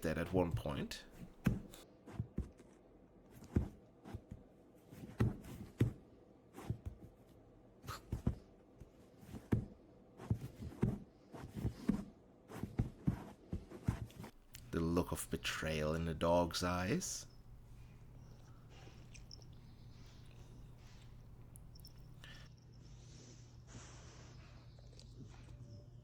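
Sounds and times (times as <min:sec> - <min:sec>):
soft knocks and thumps: 0:01.1 - 0:01.8.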